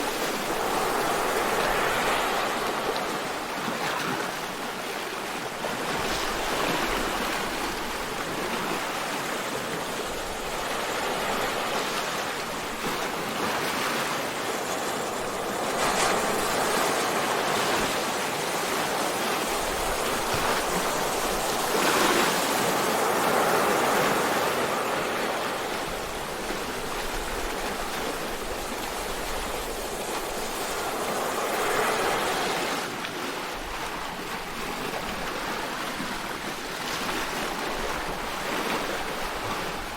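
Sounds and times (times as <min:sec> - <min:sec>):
sea waves washing: 0:00.0 - 0:39.9.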